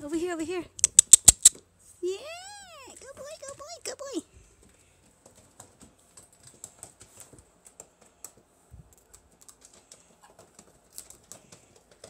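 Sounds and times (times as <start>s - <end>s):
dog claws clicking: 0.8s - 1.6s.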